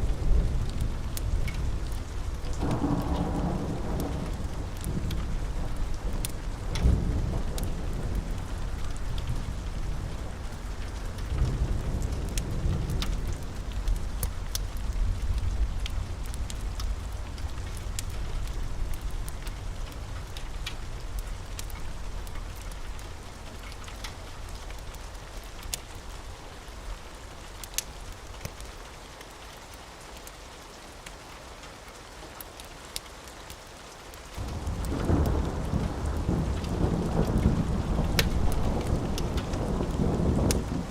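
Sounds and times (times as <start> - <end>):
rolling thunder: 0.0 - 19.4, 34.4 - 40.9
steady rain: 0.0 - 40.9.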